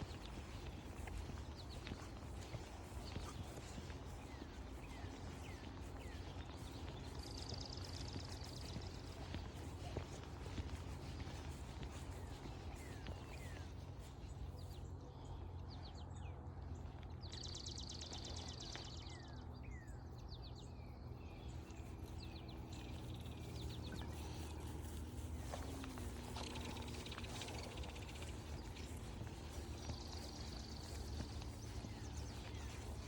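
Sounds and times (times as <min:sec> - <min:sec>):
birds chirping: 0:00.0 - 0:33.0
steady low rumble: 0:00.0 - 0:33.0
high buzzy bird trills: 0:22.8 - 0:31.0.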